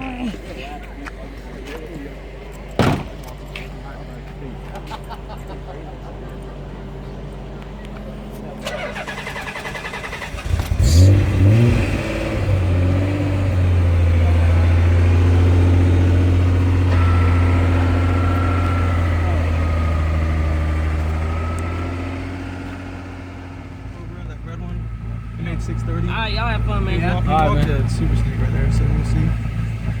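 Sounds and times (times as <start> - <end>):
drag car engine revving: 8.4 - 30.0.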